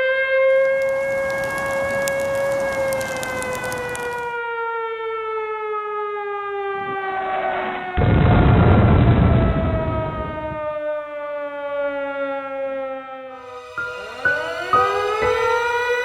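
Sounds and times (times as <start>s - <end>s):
siren wailing: 0.0s - 16.0s
crackling noise: 0.5s - 4.4s, 6.6s - 10.5s, 13.4s - 16.0s.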